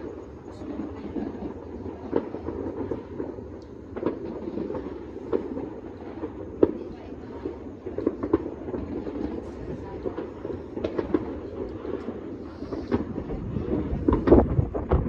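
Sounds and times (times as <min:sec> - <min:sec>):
distant fireworks crackling: 0:00.0 - 0:15.0
firecracker bangs: 0:01.0 - 0:15.0.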